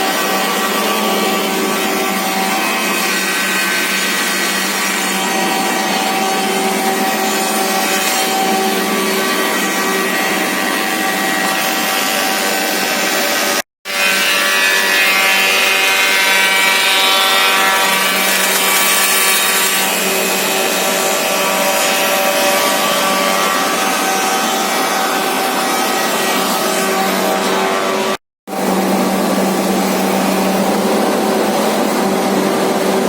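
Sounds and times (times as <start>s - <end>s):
planer machining wood: 0.0s - 33.0s.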